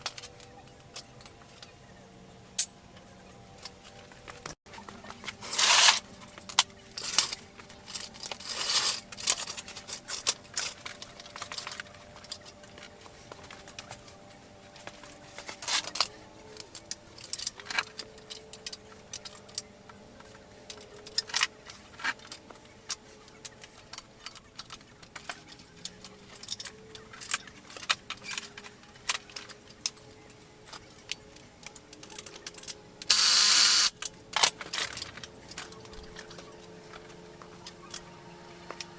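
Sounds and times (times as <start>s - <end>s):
metal tools clinking and rattling: 32.0s - 37.1s.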